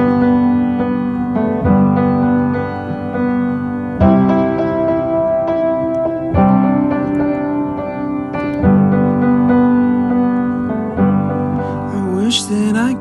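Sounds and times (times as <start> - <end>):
piano playing slow chords: 0.0 - 13.0.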